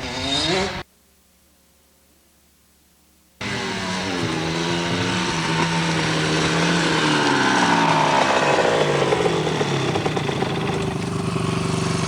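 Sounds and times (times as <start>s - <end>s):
dirt bike engine revving: 0.0s - 0.8s, 3.4s - 12.0s.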